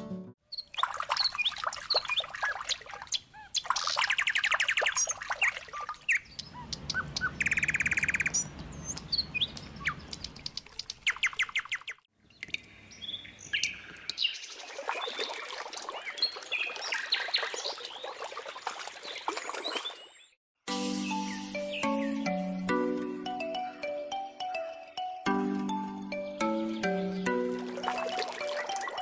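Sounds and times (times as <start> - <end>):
birds chirping and trilling: 0.4 - 20.4, 21.0 - 29.0
water pouring into plastic basin: 0.7 - 3.1, 14.5 - 19.9, 27.5 - 29.0.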